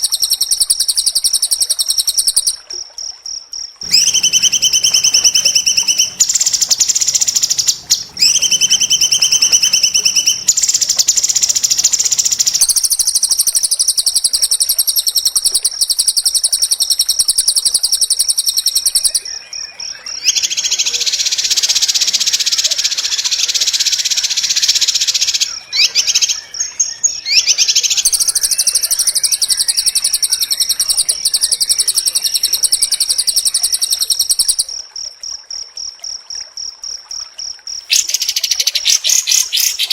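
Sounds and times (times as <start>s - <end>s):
bird singing harsh rapid trills: 3.8s - 19.3s, 23.8s - 34.1s, 37.9s - 39.9s.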